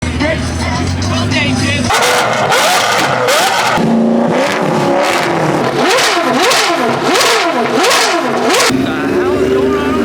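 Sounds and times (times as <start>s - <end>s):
supercar engine revving: 0.0s - 10.0s.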